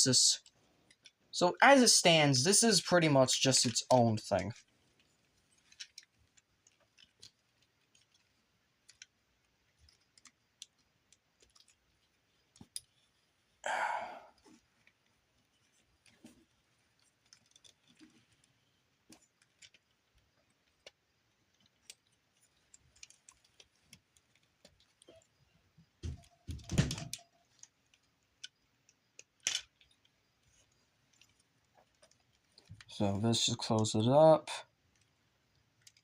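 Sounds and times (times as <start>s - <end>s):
plastic toy parts clicking: 3.5s - 13.6s, 14.8s - 25.3s, 26.8s - 32.9s, 34.9s - 36.0s.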